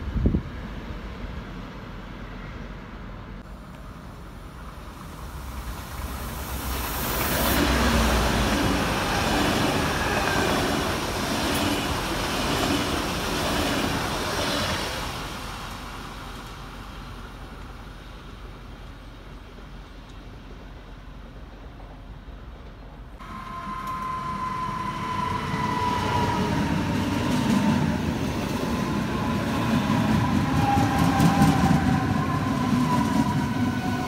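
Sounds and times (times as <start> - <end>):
train rushing past: 0.0 - 18.7, 23.2 - 34.0.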